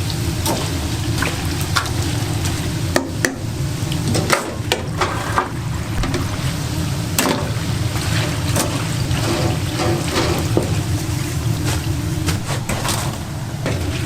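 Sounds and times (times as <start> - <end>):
donuts deep-frying in oil: 0.0 - 14.0
steady low hum: 0.0 - 14.0.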